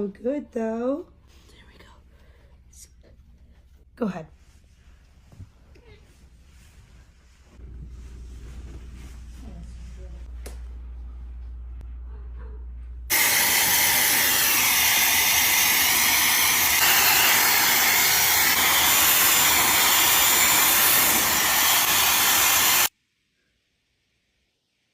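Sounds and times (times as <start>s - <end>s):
loud hissing rush: 13.1s - 22.9s.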